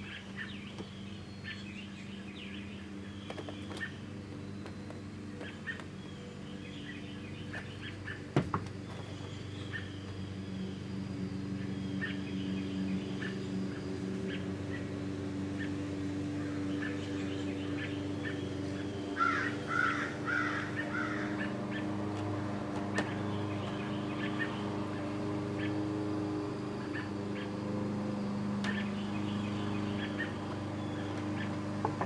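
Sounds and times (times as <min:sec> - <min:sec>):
bird chirps: 0:00.0 - 0:32.0
steady low hum: 0:00.0 - 0:32.0
harsh crow-like calls: 0:19.1 - 0:22.2.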